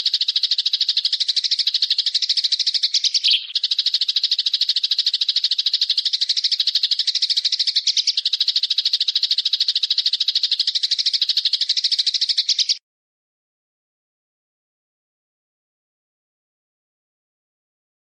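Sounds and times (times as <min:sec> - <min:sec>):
bird's fast trill: 0:00.0 - 0:12.8.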